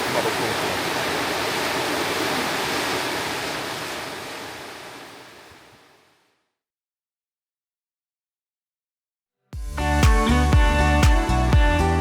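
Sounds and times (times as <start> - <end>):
water rushing: 0.0 - 6.1.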